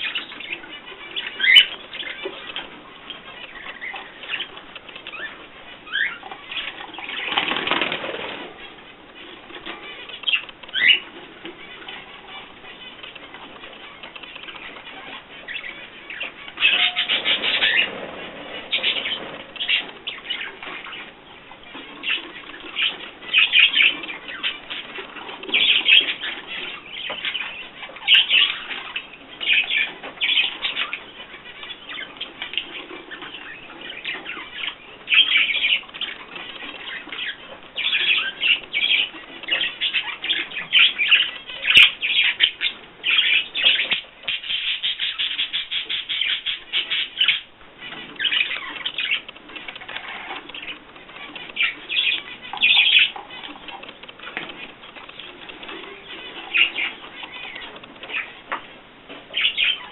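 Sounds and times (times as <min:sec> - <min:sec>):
cage birds chirping: 0:00.0 - 0:59.9.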